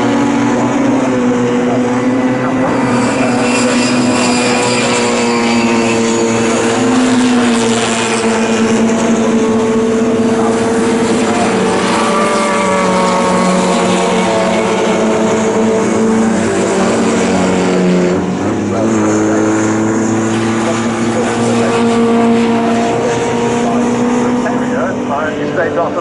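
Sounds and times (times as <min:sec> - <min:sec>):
racing car engines running hard: 0:00.0 - 0:26.0.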